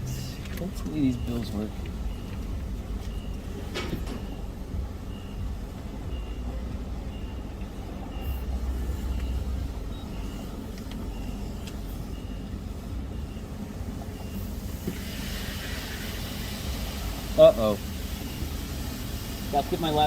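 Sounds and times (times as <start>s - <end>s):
high-pitched electronic beeps: 0.0s - 14.8s
car engine idling: 0.0s - 20.0s.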